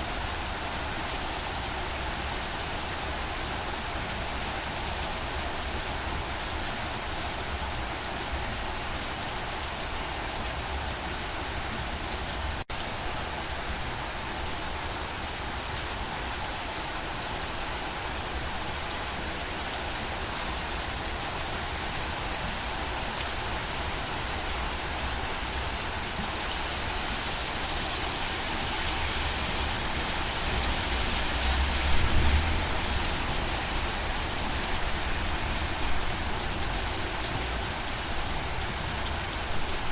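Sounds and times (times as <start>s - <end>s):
heavy rain pattering: 10.4s - 39.9s.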